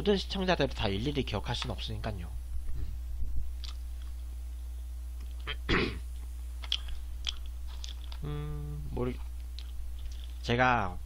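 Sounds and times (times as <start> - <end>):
low electrical hum: 0.0 - 11.0
mouth noises of eating: 5.2 - 10.4.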